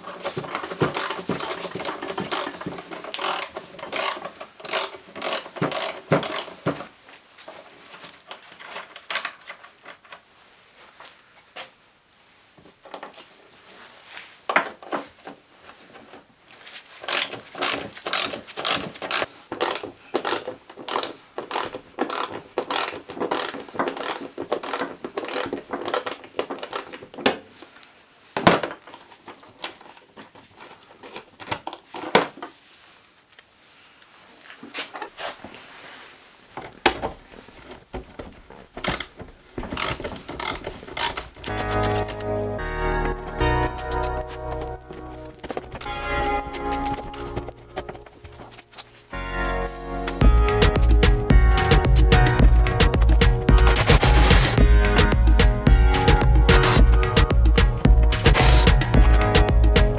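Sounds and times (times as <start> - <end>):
ratchet wrench clicking: 0.8 - 6.6, 17.1 - 25.4.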